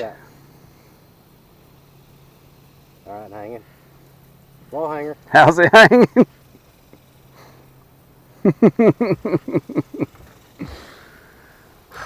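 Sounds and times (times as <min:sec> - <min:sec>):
man laughing: 0:05.6 - 0:06.4, 0:08.3 - 0:11.1
breathy exhale: 0:07.3 - 0:07.8, 0:10.6 - 0:12.0.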